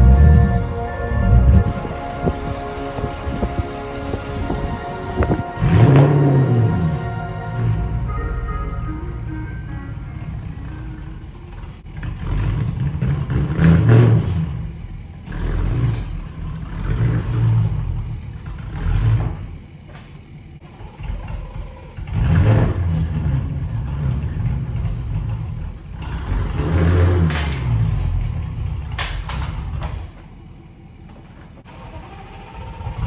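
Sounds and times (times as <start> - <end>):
car engine revving: 1.2 - 7.0.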